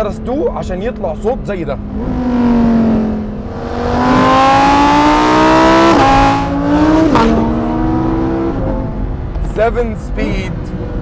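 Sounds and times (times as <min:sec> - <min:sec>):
car engine accelerating hard: 0:01.8 - 0:09.5.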